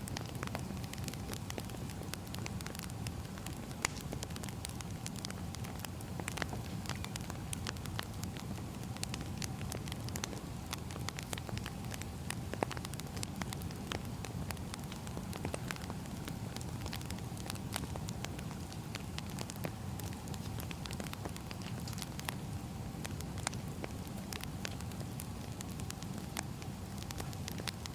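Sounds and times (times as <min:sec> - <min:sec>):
fire low rumble: 0:00.0 - 0:27.9
firewood crackling and popping: 0:00.0 - 0:27.9.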